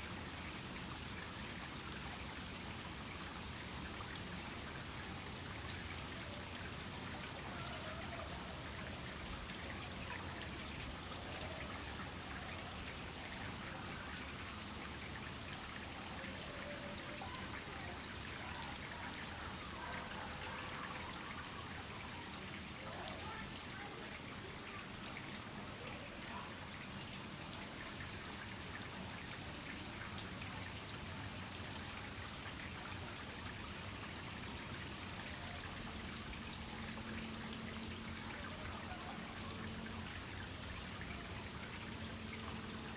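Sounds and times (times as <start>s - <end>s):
water trickling: 0.2s - 42.9s
heavy rain falling: 33.2s - 42.9s
faint voices murmuring: 38.0s - 42.1s.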